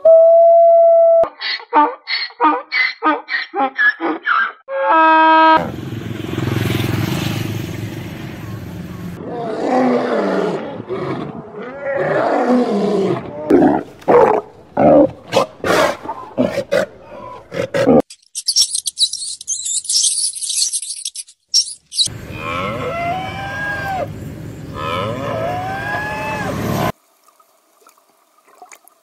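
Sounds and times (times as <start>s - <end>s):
lion roaring and grunting: 9.2s - 18.1s
cow mooing: 22.2s - 24.1s, 24.7s - 26.8s.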